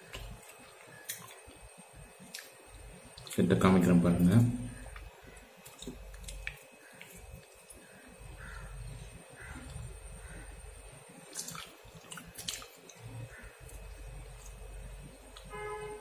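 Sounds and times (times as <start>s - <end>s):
man chewing crisp food: 0.0s - 3.4s, 4.7s - 15.5s
faint calls: 7.8s - 10.9s, 13.0s - 13.7s.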